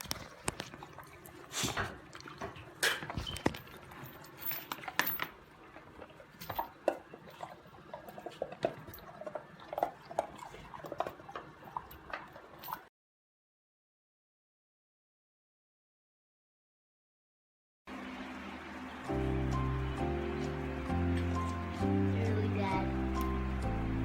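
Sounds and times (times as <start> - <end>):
puppy licking wetly: 0.0 - 2.7.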